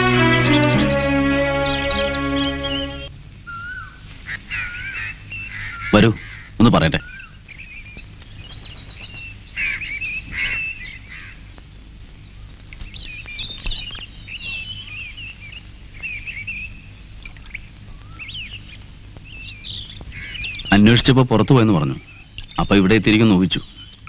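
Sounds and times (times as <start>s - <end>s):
low steady hum: 0.0s - 3.4s
birds chirping and twittering: 4.3s - 11.1s, 12.8s - 24.0s.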